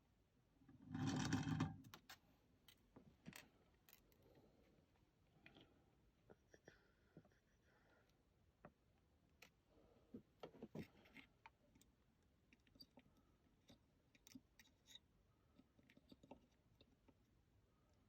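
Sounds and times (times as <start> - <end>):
small tools clicking and tapping: 10.5 - 17.2.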